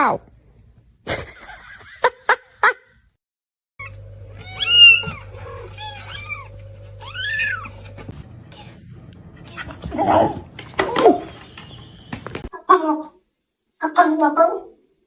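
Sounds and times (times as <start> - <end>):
cat meowing: 3.8 - 8.1
electrical hum: 3.8 - 12.5.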